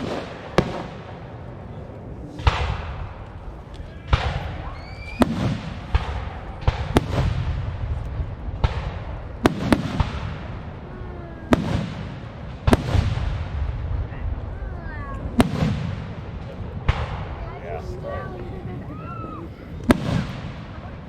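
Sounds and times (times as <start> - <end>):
fireworks booming: 0.0 - 21.0
fireworks crackling: 0.0 - 21.0
low echoing rumble: 5.6 - 21.0.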